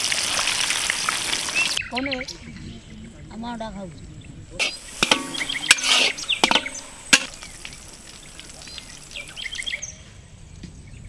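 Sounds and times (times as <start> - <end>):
small birds chirping: 1.2 - 11.0
sharp knocks: 4.6 - 7.4.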